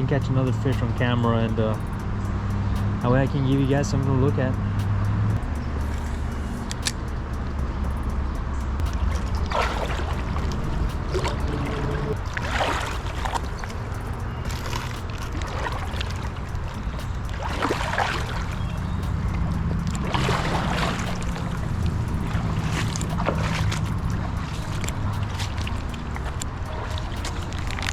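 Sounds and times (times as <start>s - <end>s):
steady low rumble: 0.0s - 27.9s
water sloshing around legs: 8.8s - 27.9s.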